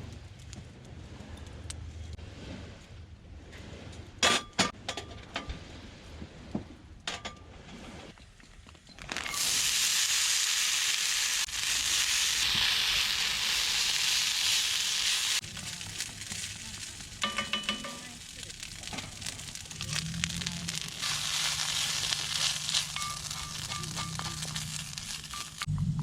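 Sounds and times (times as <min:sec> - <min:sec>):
food sizzling in a pan: 0:09.1 - 0:25.7.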